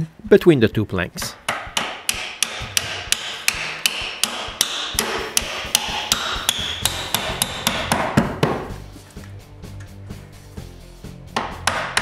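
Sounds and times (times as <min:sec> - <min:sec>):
hammer striking wood: 0:01.4 - 0:08.8, 0:11.3 - 0:12.0.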